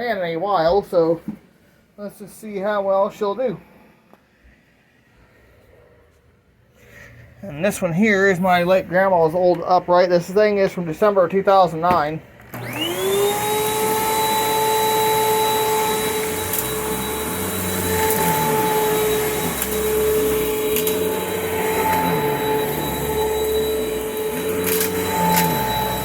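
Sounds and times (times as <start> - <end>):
vacuum cleaner motor whine: 12.4 - 26.0.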